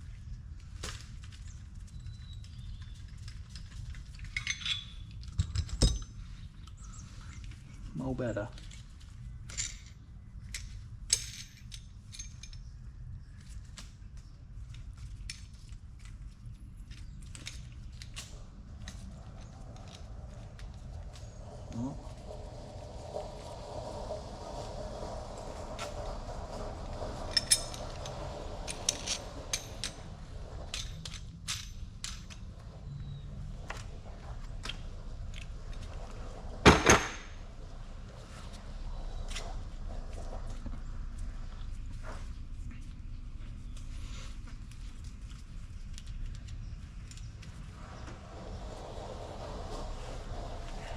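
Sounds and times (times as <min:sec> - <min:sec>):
low background rumble: 0:14.2 - 0:50.9
loud metal clatter: 0:36.6 - 0:37.5.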